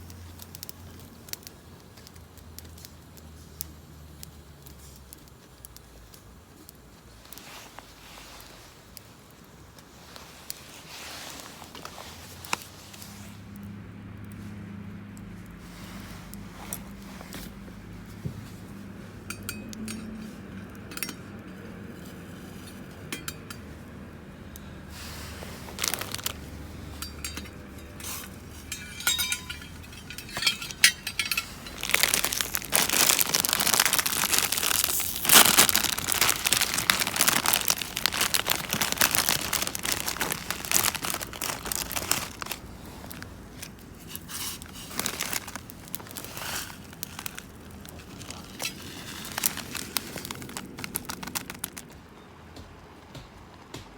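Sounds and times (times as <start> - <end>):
wrapping crinkling and rustling: 0.0 - 24.1, 24.7 - 52.0
camp gear clicks and clinks: 18.7 - 24.0, 25.6 - 53.9.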